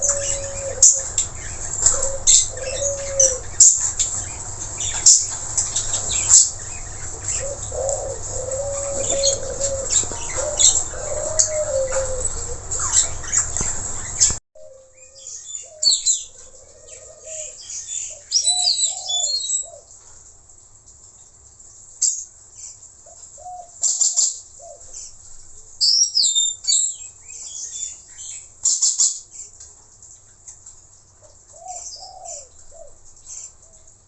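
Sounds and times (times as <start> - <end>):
parakeets chirping and squawking: 0.0 - 14.4.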